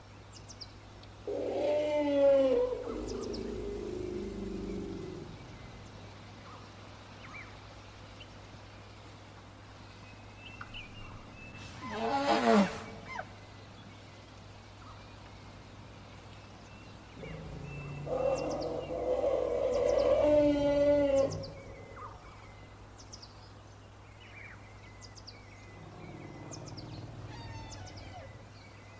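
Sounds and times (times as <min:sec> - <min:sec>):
low pitched animal sound: 0:01.3 - 0:05.8, 0:17.1 - 0:22.4, 0:25.6 - 0:28.8
elephant calling: 0:01.3 - 0:05.9, 0:17.2 - 0:22.5, 0:25.6 - 0:28.8
bird chirps: 0:24.5 - 0:28.9.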